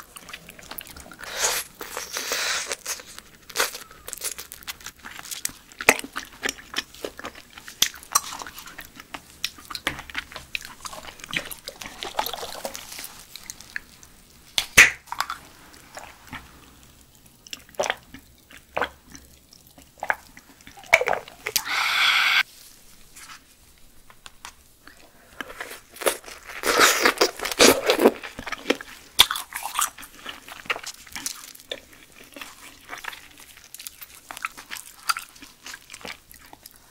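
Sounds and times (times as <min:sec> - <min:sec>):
wet chewing with clicks: 0:24.9 - 0:36.9.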